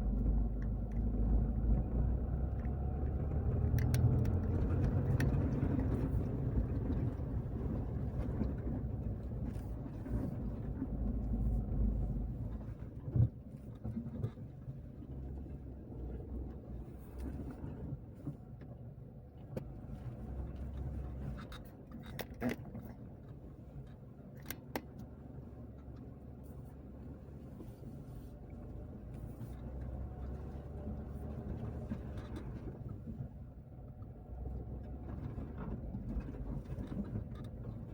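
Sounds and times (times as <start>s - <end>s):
car engine and tyres rumbling: 0.0s - 37.9s
light clicks and taps: 0.2s - 7.4s, 20.5s - 26.7s.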